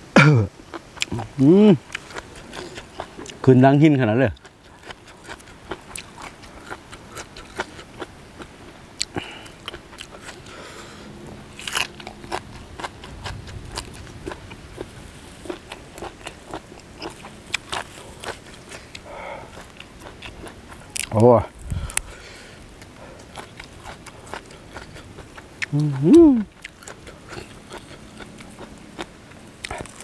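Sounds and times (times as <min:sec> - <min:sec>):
crunchy chewing: 0:00.6 - 0:30.0.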